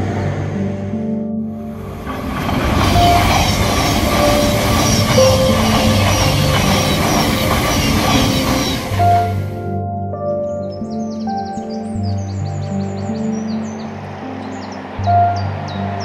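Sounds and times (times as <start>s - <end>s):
soft background music: 0.0s - 16.0s
train wheel and rail noise: 1.6s - 9.6s.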